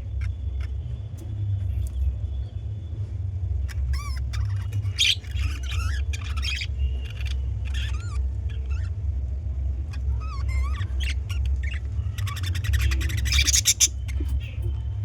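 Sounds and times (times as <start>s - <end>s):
budgerigars chirping and warbling: 0.0s - 0.9s, 3.6s - 9.0s, 9.8s - 14.8s
steady low rumble: 0.0s - 15.0s.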